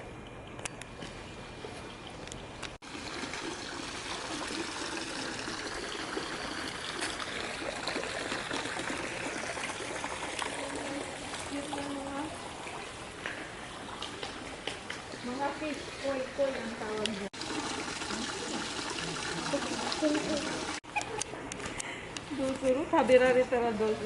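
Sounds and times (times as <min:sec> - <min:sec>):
water trickling and splashing: 0:01.6 - 0:20.8.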